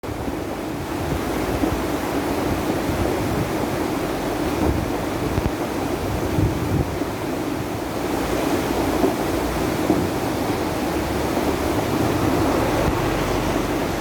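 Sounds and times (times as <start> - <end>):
stream water rushing loudly: 0.0 - 14.0.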